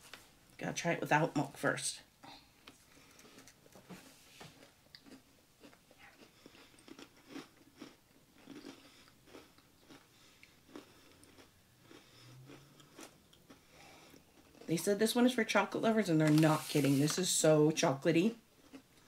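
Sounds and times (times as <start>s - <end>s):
people crunching cookies: 2.5s - 3.8s, 4.6s - 17.4s, 18.6s - 19.0s.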